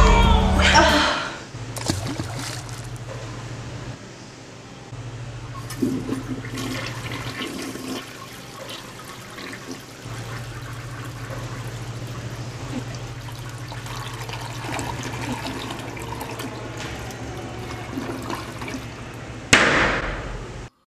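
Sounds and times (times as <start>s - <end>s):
steady low hum: 0.0s - 20.8s
toilet flushing: 5.4s - 19.5s.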